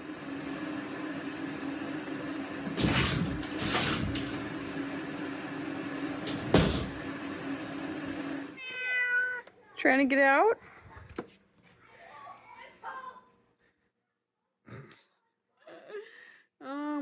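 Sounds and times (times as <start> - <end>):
cupboard door knocking and rattling: 6.2 - 7.0.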